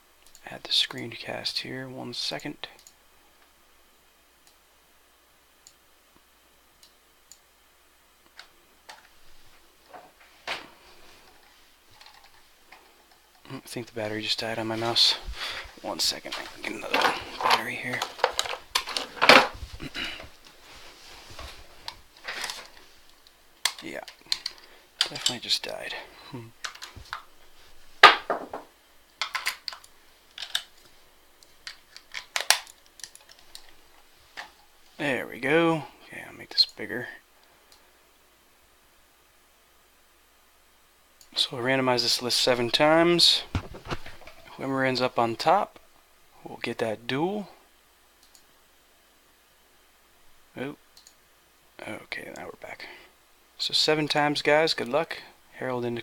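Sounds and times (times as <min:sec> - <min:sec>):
computer mouse clicks: 0:02.8 - 0:03.0, 0:48.2 - 0:48.4.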